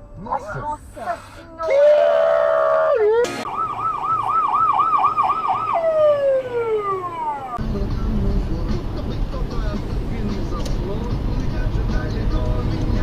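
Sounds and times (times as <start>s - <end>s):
electronic siren: 2.9s - 7.6s
road and engine noise: 3.0s - 13.0s.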